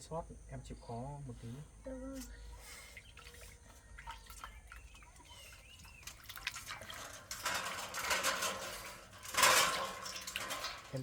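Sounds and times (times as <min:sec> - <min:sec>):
water pouring and splashing: 0:02.9 - 0:11.0.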